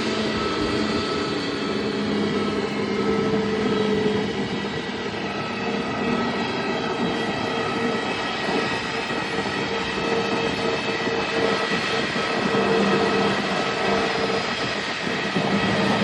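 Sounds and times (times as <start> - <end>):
airliner engines running: 0.0 - 16.0.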